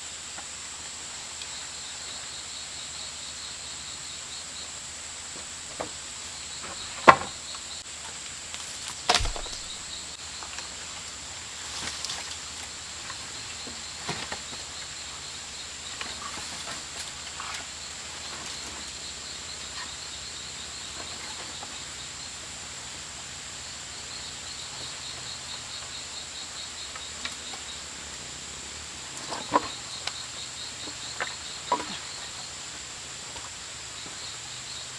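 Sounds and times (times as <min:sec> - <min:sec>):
insects high-pitched buzz: 0:00.0 - 0:34.9
sharp knocks: 0:09.1 - 0:10.0.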